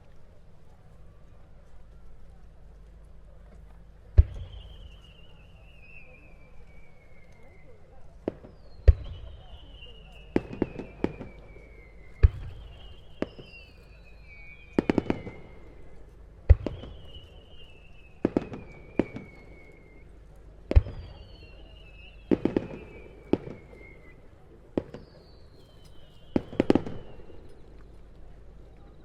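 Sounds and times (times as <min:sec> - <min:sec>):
firework booms: 0:04.2 - 0:05.0, 0:16.5 - 0:17.2
firework whistles falling in pitch: 0:04.2 - 0:15.9, 0:16.6 - 0:28.0
fireworks crackling: 0:07.8 - 0:29.0.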